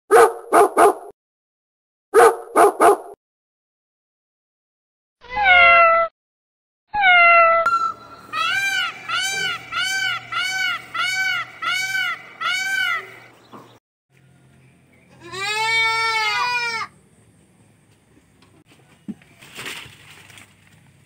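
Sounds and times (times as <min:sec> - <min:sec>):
peacock calling loud honks: 0:07.7 - 0:13.4.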